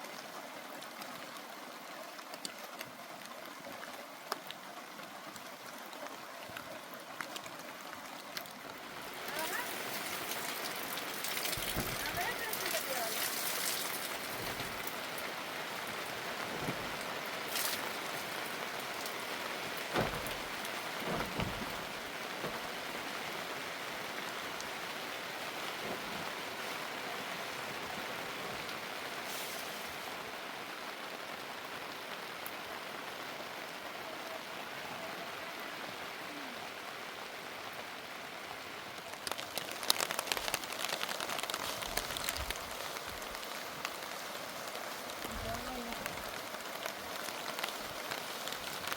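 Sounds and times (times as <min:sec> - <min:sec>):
heavy rain falling: 0:00.0 - 0:48.9
knocks: 0:19.9 - 0:22.6.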